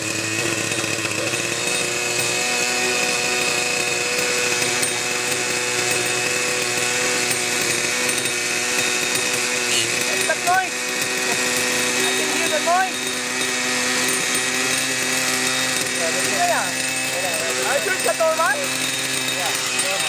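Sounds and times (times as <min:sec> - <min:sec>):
model helicopter engine running: 0:00.0 - 0:20.0
people talking: 0:09.7 - 0:10.7, 0:11.3 - 0:13.0, 0:16.0 - 0:20.0.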